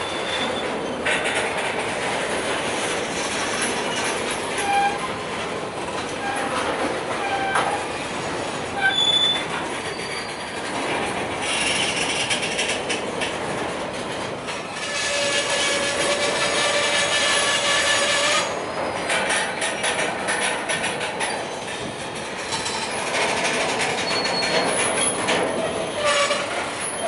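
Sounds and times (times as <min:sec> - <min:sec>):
high-pitched wheel squeals: 0:00.0 - 0:00.7, 0:08.8 - 0:10.6, 0:14.8 - 0:18.9, 0:24.0 - 0:27.0
steel wheels running on rails: 0:00.0 - 0:27.0.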